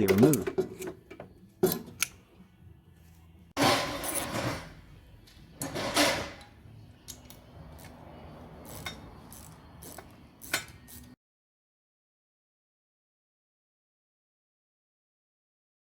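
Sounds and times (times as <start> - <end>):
hard parts scraping and clattering: 3.6 - 11.2.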